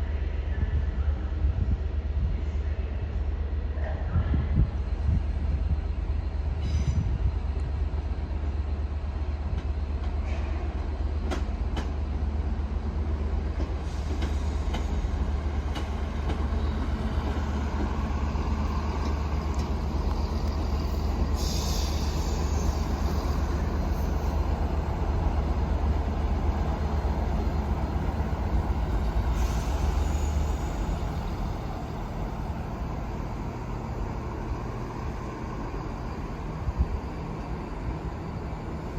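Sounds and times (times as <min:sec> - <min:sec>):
train humming: 0:00.0 - 0:38.9
high hisses: 0:20.6 - 0:24.5, 0:29.0 - 0:31.9.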